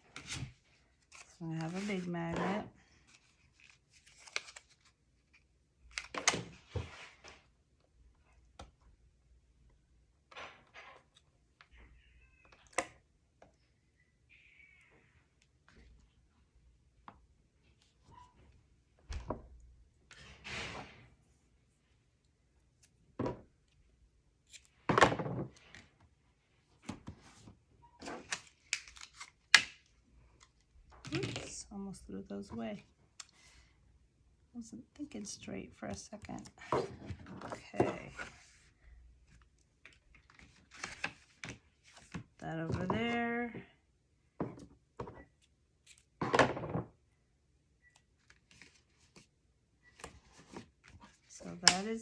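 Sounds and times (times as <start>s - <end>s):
paper rustling and crinkling: 0.0s - 7.4s.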